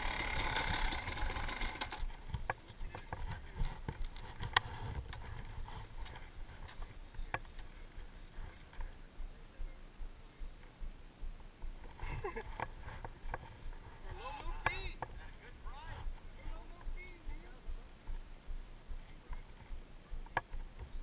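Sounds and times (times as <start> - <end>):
dirt bike engine idling: 0.0 - 4.6.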